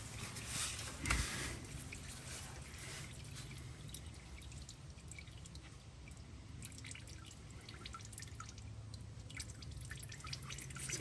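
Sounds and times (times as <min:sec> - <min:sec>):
oil dripping into a pan: 0:03.2 - 0:11.0.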